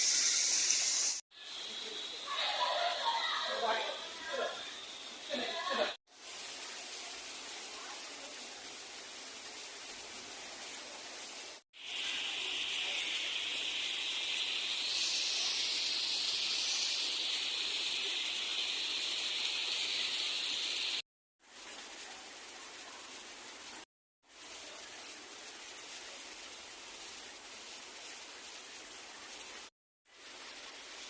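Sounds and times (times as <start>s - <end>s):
steady high hiss: 0.0s - 21.0s.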